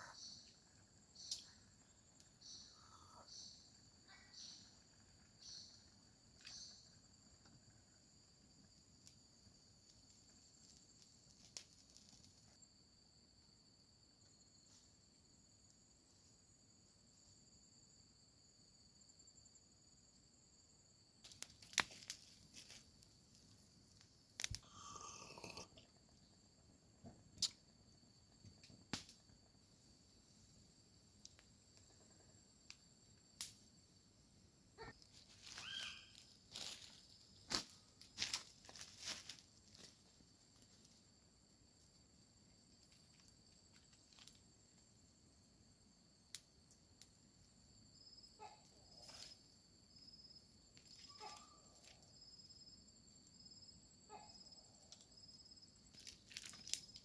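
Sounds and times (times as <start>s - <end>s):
crickets trilling: 0.0s - 57.0s
night insects chirring: 0.0s - 57.0s
crinkling rustle: 35.1s - 40.0s.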